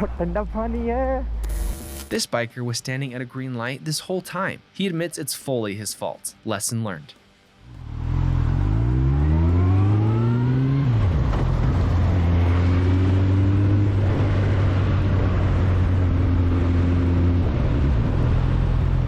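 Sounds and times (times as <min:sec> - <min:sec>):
motorcycle engine accelerating: 0:07.6 - 0:19.0
rushing wind noise: 0:13.7 - 0:19.0.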